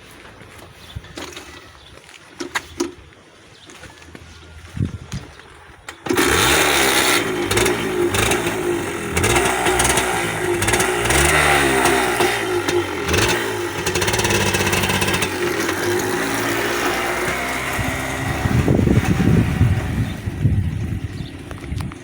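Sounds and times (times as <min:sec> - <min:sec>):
two-stroke motorcycle engine revving: 0:05.9 - 0:22.0.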